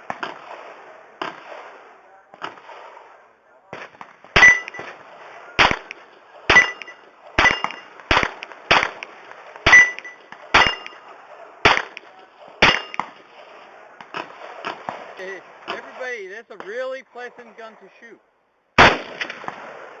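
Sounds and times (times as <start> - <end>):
gunshots: 0.0 - 16.0, 18.8 - 20.0
faint distant gunshot cracks: 18.8 - 20.0.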